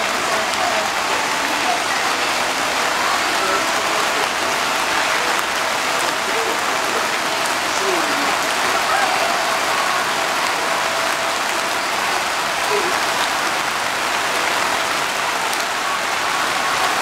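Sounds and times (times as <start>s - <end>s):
heavy rain on ground: 0.0s - 17.0s.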